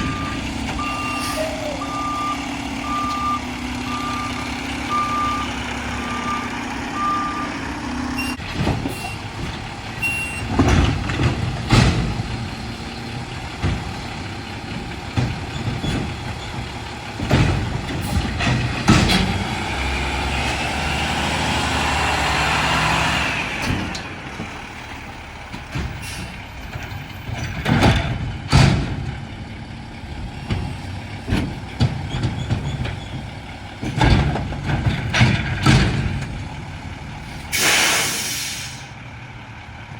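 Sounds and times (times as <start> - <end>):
garbage truck engine: 0.0 - 39.9
short beeps: 0.1 - 5.5
metal bangs and clanks: 8.4 - 19.8, 25.5 - 29.5, 30.1 - 38.2.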